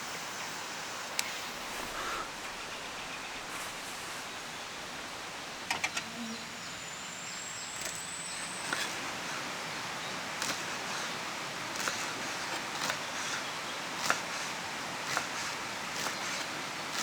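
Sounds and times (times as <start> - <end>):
sharp clicks: 1.1 - 1.7, 5.6 - 6.1, 7.7 - 9.2.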